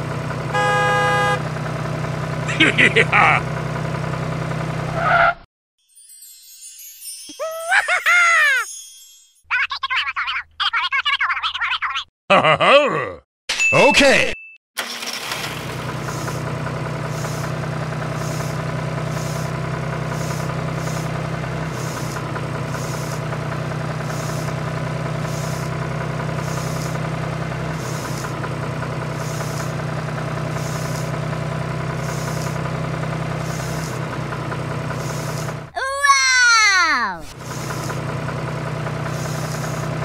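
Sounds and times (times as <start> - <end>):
tractor engine chuffing: 0.0 - 4.9, 14.8 - 35.8, 37.2 - 40.0.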